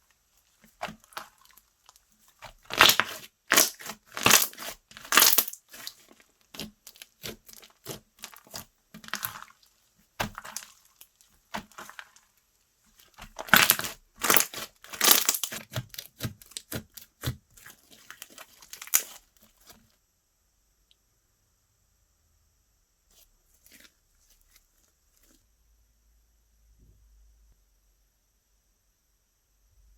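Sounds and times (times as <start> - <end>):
slime popping and crackling: 0.6 - 12.2, 13.0 - 19.2.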